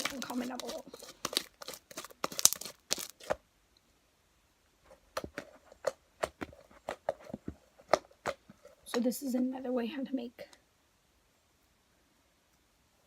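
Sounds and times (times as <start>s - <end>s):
crackling handling sounds: 0.0s - 3.4s, 4.8s - 9.2s.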